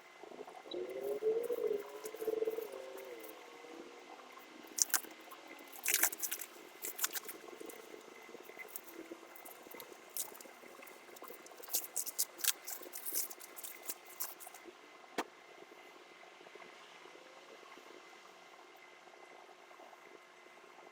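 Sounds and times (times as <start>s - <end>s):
soft crackles of handling: 0.9s - 3.4s, 4.1s - 15.0s.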